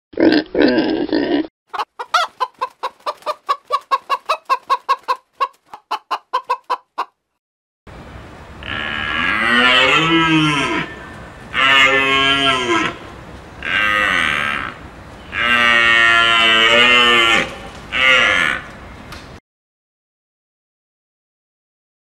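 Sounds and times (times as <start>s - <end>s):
farm animal calling: 8.6s - 18.8s.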